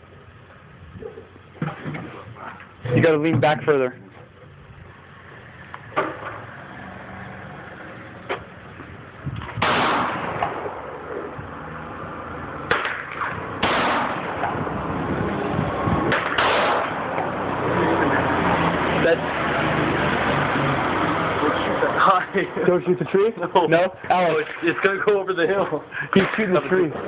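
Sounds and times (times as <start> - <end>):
steady rushing noise: 4.7 - 27.0
rifle shots: 9.6 - 10.8, 12.7 - 14.6, 16.1 - 17.2.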